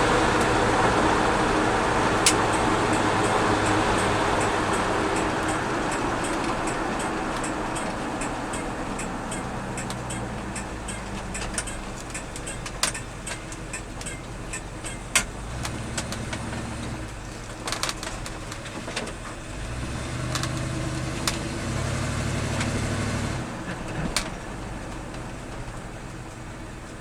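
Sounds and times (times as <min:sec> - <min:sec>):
truck engine running: 0:00.0 - 0:27.0
sharp clicks and rattles: 0:02.1 - 0:21.5.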